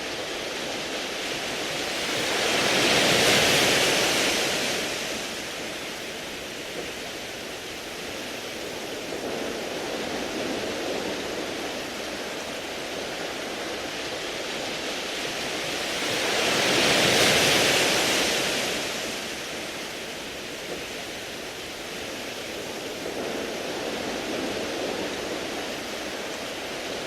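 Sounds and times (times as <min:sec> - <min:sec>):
waves washing over pebbles: 0:00.0 - 0:27.0.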